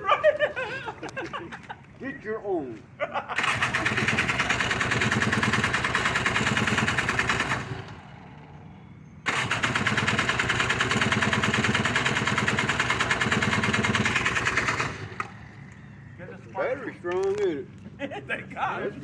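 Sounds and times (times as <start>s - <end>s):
electric starter cranking engine: 3.4s - 8.6s, 9.2s - 16.0s.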